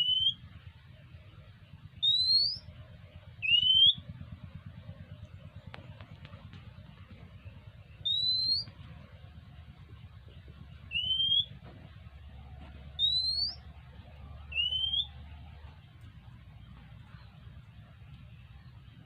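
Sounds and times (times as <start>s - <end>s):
bird whistling rising notes: 0.0s - 0.4s, 2.0s - 2.7s, 3.3s - 4.1s, 7.5s - 8.8s, 10.7s - 11.6s, 12.4s - 15.4s.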